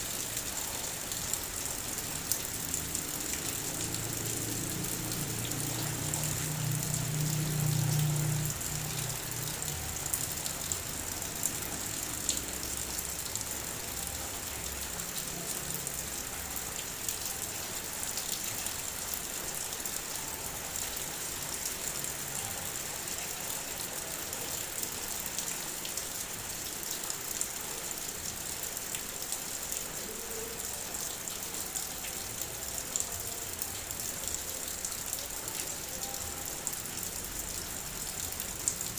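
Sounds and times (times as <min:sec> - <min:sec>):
heavy rain on a car: 0:00.0 - 0:38.9.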